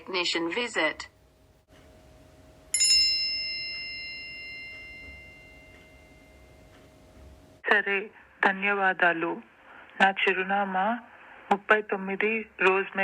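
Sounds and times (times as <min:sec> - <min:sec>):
faint steady hum: 0:00.0 - 0:13.0
bell-like chime ringing: 0:02.7 - 0:06.7.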